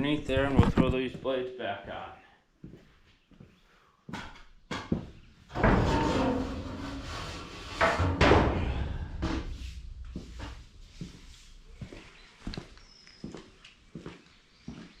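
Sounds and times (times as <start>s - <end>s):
broom scraping debris: 5.5s - 12.4s.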